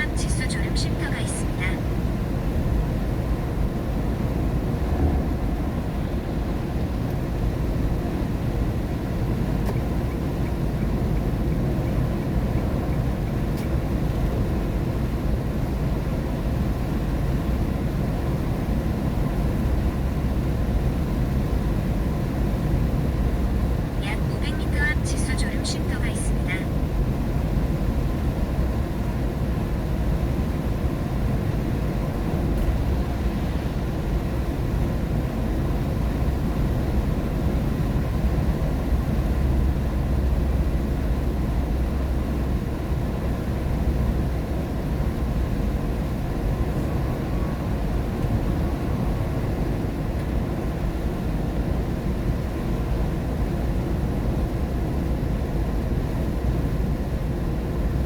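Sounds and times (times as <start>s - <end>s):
tyres and engine rumbling: 0.0s - 14.4s, 23.6s - 26.7s.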